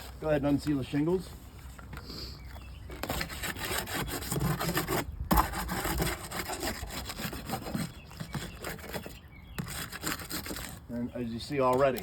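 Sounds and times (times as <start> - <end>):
shingles scraping and rubbing: 2.6 - 12.0.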